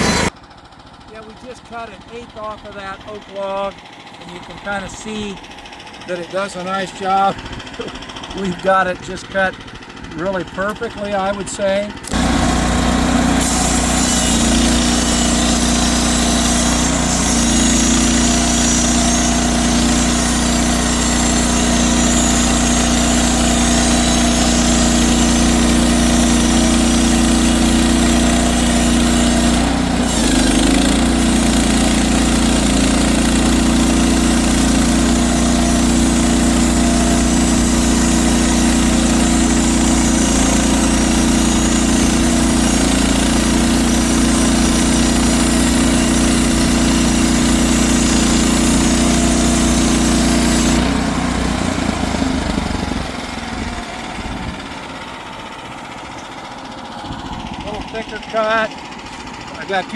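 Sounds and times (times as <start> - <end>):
small petrol engine running: 0.0 - 59.9.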